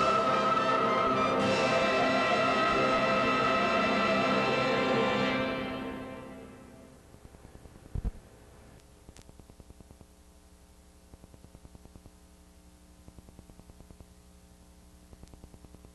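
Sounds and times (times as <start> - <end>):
recording hiss and hum: 0.0 - 15.9.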